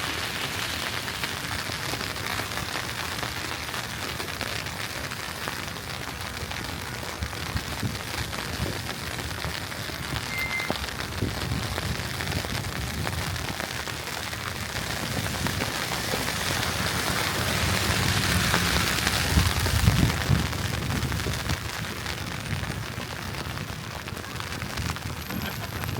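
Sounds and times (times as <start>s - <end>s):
wet hiss of slushy street: 0.0s - 25.9s.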